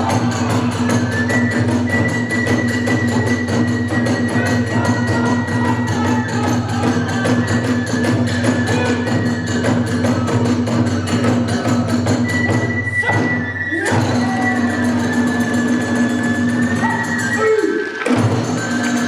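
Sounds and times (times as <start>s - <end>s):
rapid drum strikes: 0.0s - 1.9s
flute holding high note: 0.0s - 9.8s
hand cymbal strikes: 0.0s - 12.3s.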